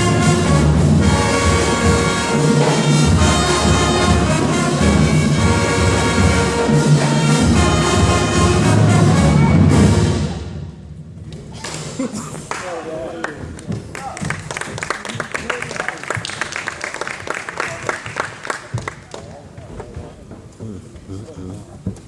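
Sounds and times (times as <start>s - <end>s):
brass instruments: 0.0s - 11.0s.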